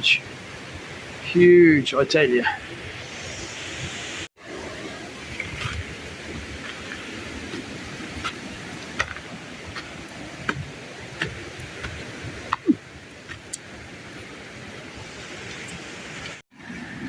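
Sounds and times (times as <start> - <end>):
steady outdoor hiss: 0.0 - 17.0
footsteps on dirt trail: 5.4 - 14.4.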